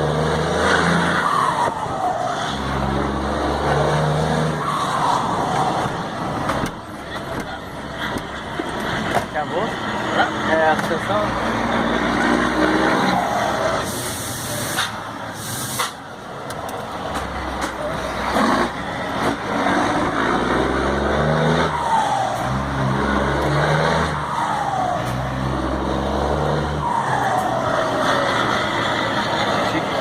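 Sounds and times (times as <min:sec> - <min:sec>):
diesel truck engine revving: 0:00.0 - 0:30.0
air release hisses: 0:13.9 - 0:16.0.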